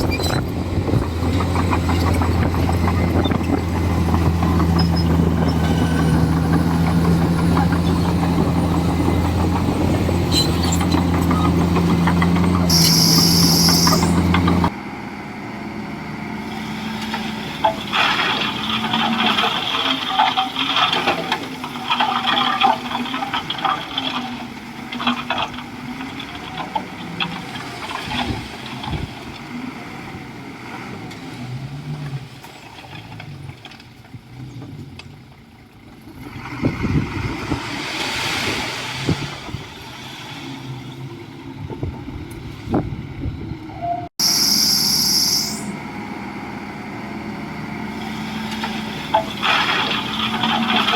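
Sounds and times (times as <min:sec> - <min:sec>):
clanks and squeaks: 0:00.0 - 0:14.7
bulldozer diesel engine droning: 0:00.0 - 0:50.9.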